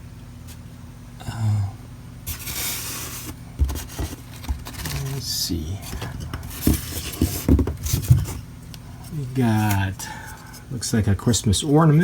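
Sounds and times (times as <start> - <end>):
electrical hum: 0.0 - 12.0
low humming voice: 1.2 - 1.9, 4.7 - 6.4
rustling: 2.3 - 8.4.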